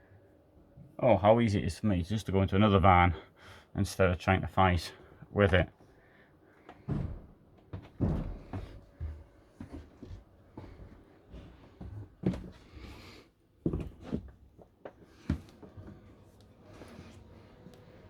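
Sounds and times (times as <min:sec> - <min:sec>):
dull knocks and bumps: 0:06.8 - 0:10.1.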